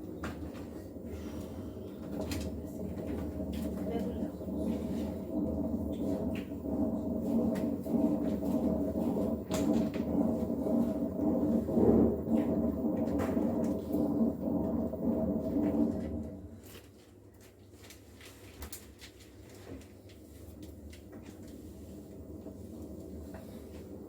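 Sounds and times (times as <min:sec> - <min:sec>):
washing machine spinning: 0:00.0 - 0:16.9, 0:17.8 - 0:24.0.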